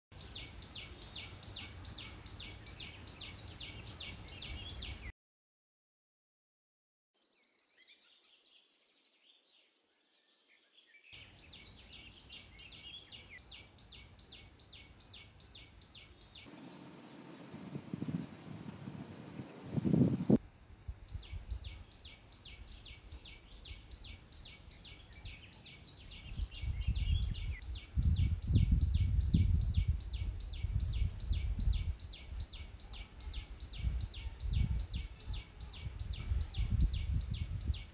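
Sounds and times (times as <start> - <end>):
small bird chirping: 0.1 - 5.1, 7.2 - 20.4, 21.1 - 37.9
fast high-pitched pulsing: 16.5 - 20.4.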